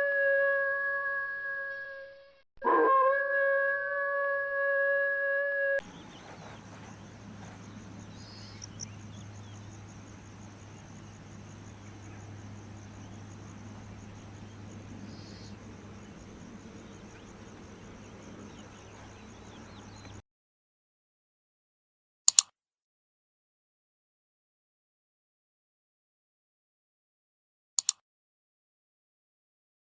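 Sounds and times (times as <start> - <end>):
long pitched call: 0.0 - 5.9
low hum: 5.8 - 20.2.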